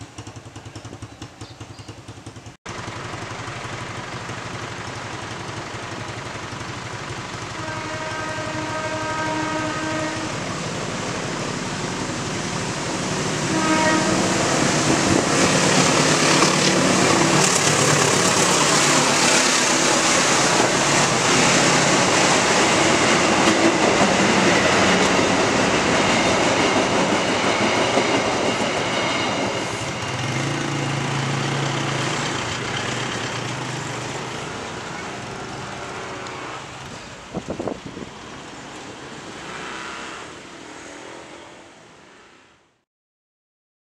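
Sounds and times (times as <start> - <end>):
train wheels on rails: 0.0 - 42.5
train horn blasts: 7.6 - 10.4, 13.4 - 14.5.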